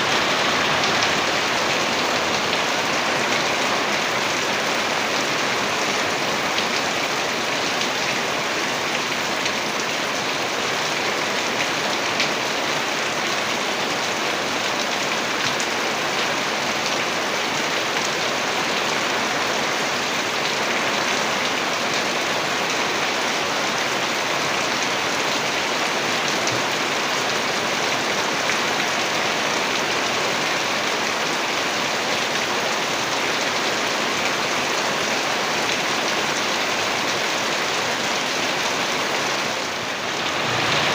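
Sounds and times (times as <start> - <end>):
heavy rain pattering: 0.0 - 40.9.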